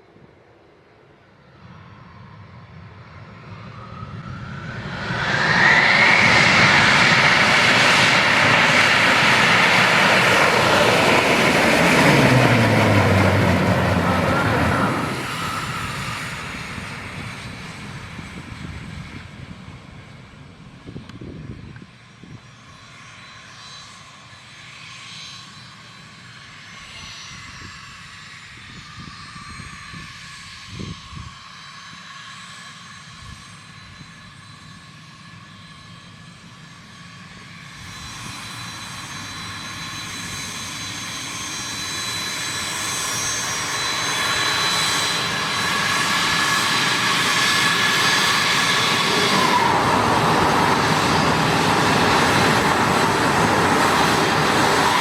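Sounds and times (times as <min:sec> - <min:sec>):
jet engines whining: 0:01.9 - 0:20.4, 0:34.4 - 0:55.0.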